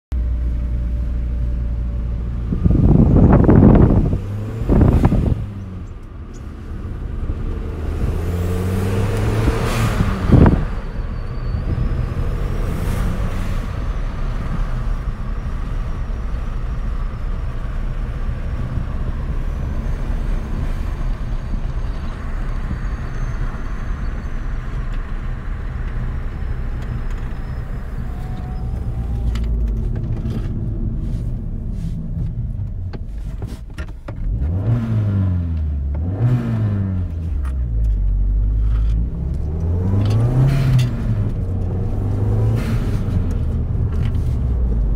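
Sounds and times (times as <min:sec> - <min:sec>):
road noise: 0:00.1 - 0:44.9
car engine revving: 0:02.5 - 0:22.8, 0:34.2 - 0:44.9.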